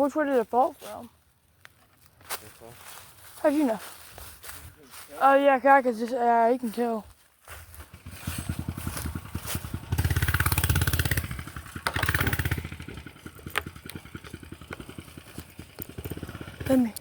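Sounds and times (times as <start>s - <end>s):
mini bike engine revving: 7.8s - 17.0s.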